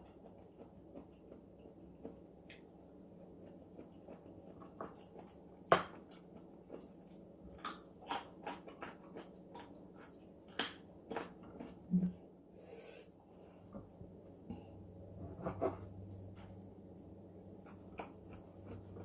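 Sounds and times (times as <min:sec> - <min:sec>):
crunchy chewing: 0:06.0 - 0:11.8.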